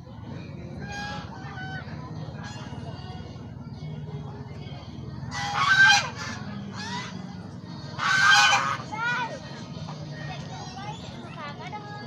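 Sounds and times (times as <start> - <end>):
ducks quacking: 0.7 - 3.2, 5.2 - 9.3.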